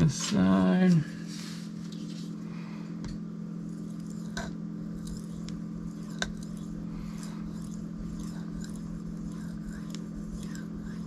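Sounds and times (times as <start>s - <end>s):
steady low hum: 0.0s - 11.0s
knife scraping on whetstone: 3.6s - 11.0s.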